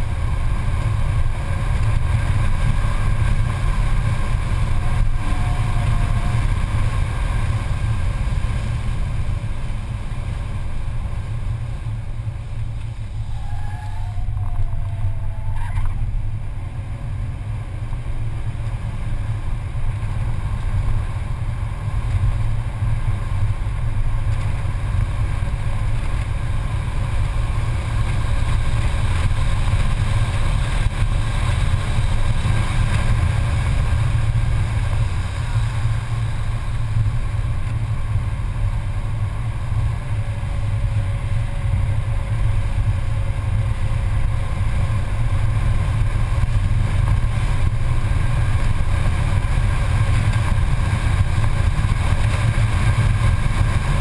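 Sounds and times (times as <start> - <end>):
road noise inside car: 0.0 - 54.0
wind noise: 0.0 - 54.0.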